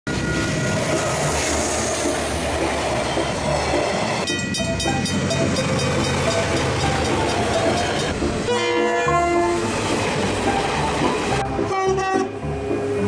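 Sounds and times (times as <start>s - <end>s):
diesel train engine rumbling: 0.1s - 13.0s
train wheels on rails: 0.1s - 13.0s
crossing bells ringing: 3.1s - 11.8s.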